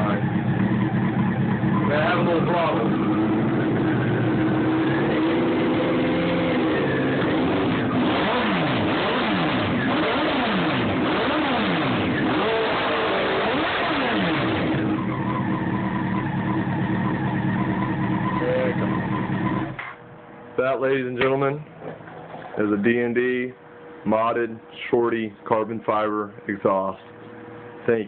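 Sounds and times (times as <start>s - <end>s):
motorcycle engine idling: 0.0s - 7.9s, 14.7s - 19.8s
motorcycle engine revving: 0.0s - 19.9s.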